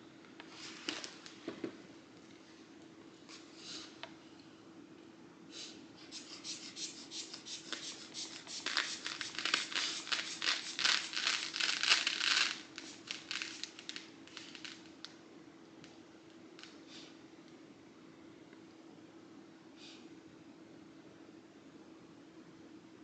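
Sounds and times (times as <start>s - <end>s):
faint steady hum: 0.0s - 23.0s
rubber bulb pumping puffs: 6.1s - 14.6s.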